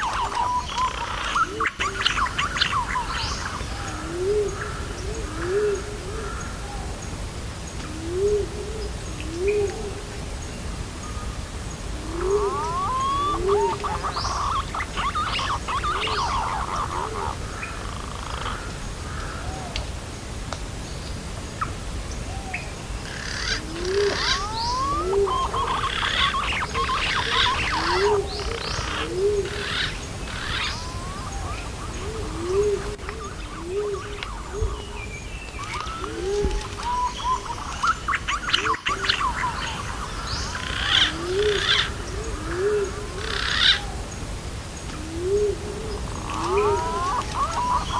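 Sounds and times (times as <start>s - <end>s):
birds chirping and whistling: 0.0s - 3.7s, 12.1s - 18.6s, 22.5s - 42.0s, 45.9s - 47.9s
background hiss: 0.0s - 47.9s
pigeon low rising calls: 11.9s - 18.7s, 23.1s - 44.0s, 45.0s - 47.9s.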